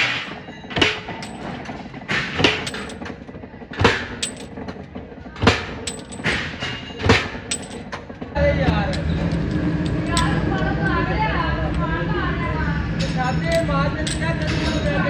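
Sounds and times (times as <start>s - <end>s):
metal impacts with metallic ring: 0.0s - 4.7s, 5.4s - 8.1s, 8.7s - 10.5s, 13.0s - 15.0s
steady workshop noise: 0.0s - 15.0s.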